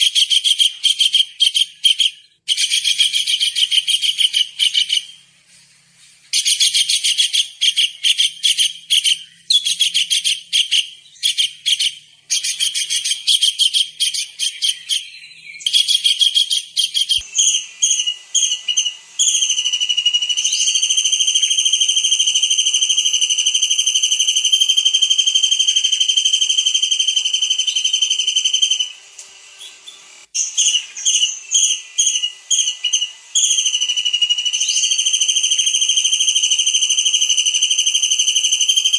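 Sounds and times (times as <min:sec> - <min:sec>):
long high whistle: 0:17.1 - 0:29.0.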